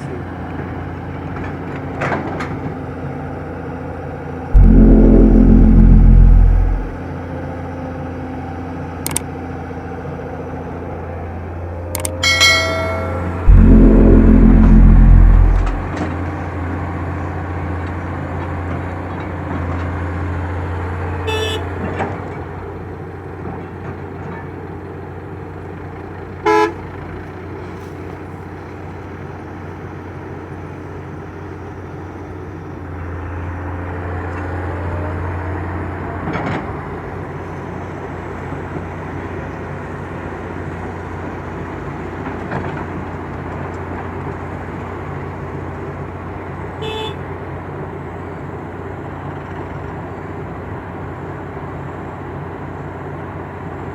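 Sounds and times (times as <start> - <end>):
vehicle engine running: 4.6 - 7.0, 13.4 - 15.9
horn toot: 12.0 - 15.9.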